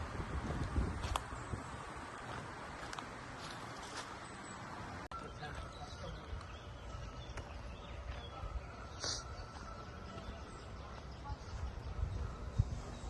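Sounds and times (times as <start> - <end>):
wind rumble on microphone: 0.0 - 2.7, 10.3 - 13.0
high bird chirp: 4.2 - 13.0.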